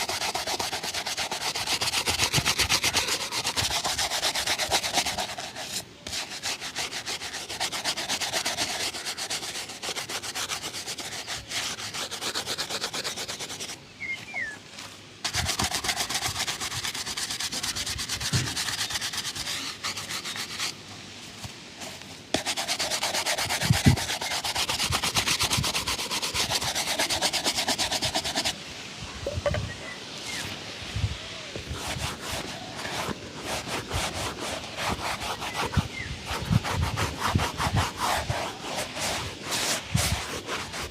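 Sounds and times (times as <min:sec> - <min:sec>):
shoe buffing rubbing strokes: 0:00.0 - 0:28.6, 0:30.2 - 0:40.9.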